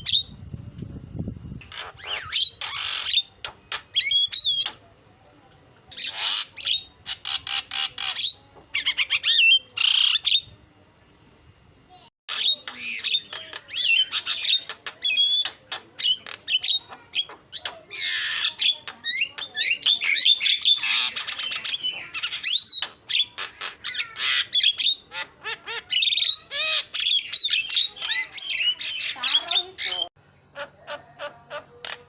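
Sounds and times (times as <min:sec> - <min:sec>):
myna chattering: 0:12.3 - 0:32.0.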